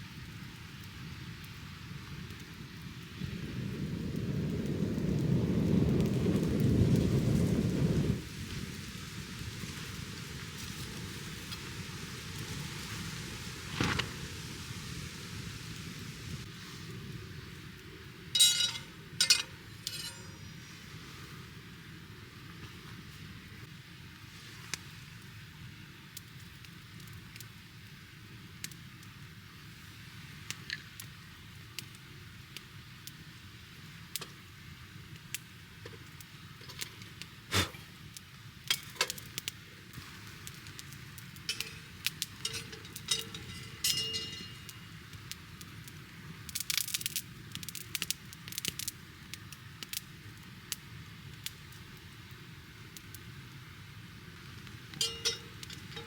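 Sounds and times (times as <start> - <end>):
campfire crackling: 0.0 - 56.0
fire popping: 0.2 - 23.6, 35.1 - 56.0.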